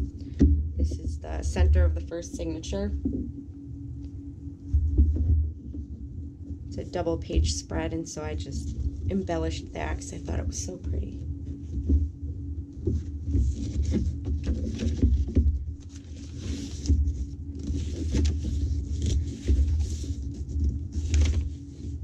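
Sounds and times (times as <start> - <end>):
low hum: 0.0 - 22.0
paper pages rustling: 12.9 - 22.0.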